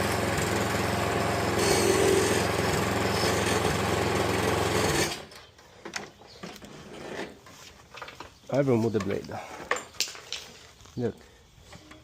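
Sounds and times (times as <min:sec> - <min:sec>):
lawn mower engine running: 0:00.0 - 0:05.4.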